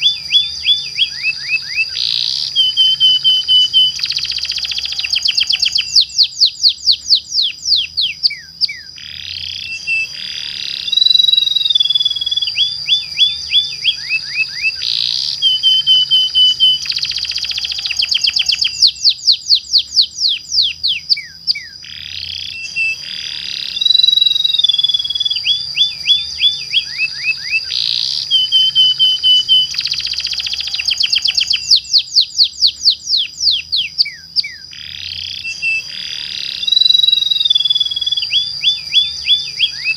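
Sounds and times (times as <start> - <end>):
canary singing trills: 0.0 - 39.9
steady high tone: 9.5 - 19.0, 22.4 - 32.0.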